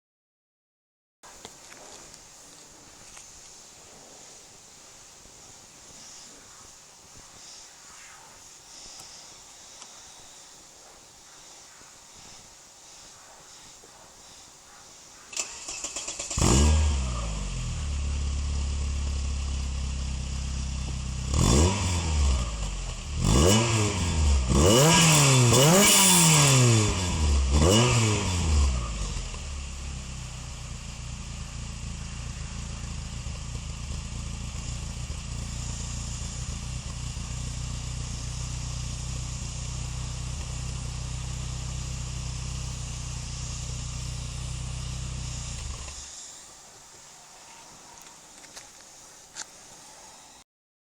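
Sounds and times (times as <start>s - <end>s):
car engine starting and revving: 15.3s - 46.2s.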